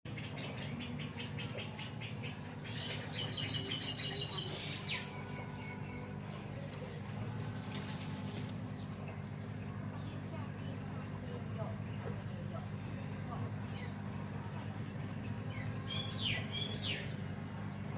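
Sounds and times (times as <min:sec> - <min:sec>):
bird chirping: 0:00.1 - 0:06.2, 0:15.5 - 0:17.3
low hum: 0:00.1 - 0:17.9.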